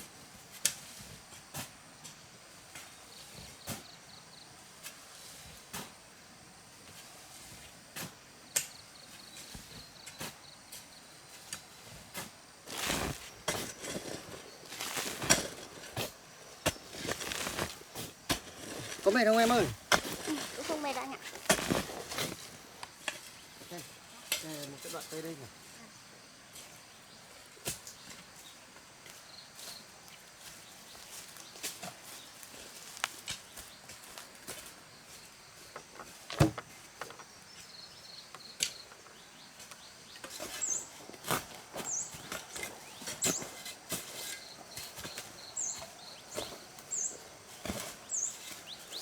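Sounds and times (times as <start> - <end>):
rustling scrapes: 11.8 - 25.2, 40.2 - 49.0
footsteps: 12.7 - 23.3.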